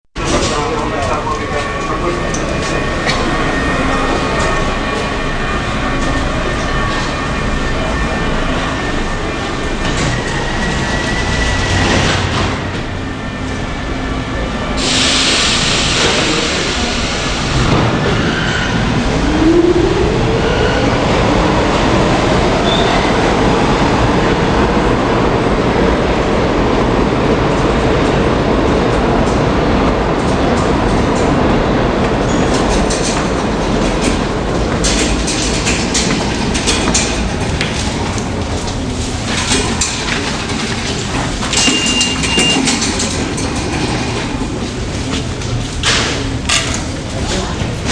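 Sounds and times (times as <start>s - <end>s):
wheels rumbling on rails: 0.2s - 47.9s
loud hiss of air: 14.8s - 17.7s.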